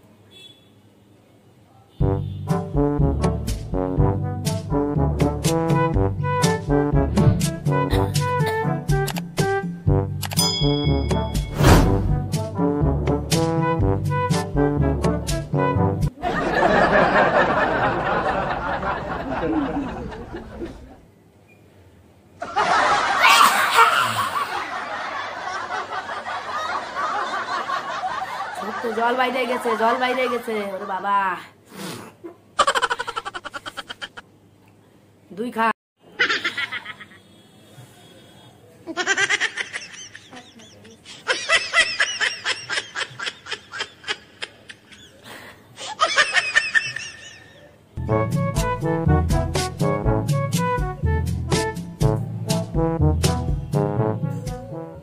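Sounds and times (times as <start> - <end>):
people laughing: 16.2 - 21.0, 22.4 - 31.4, 32.3 - 34.2, 36.2 - 37.2, 38.9 - 47.8
high-pitched giggling: 32.3 - 34.2, 36.2 - 37.2.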